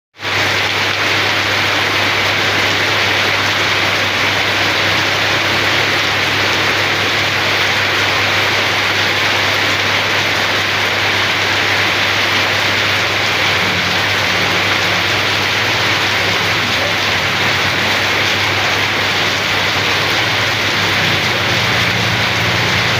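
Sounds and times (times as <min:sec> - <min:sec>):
steady rain hiss: 0:00.2 - 0:22.9.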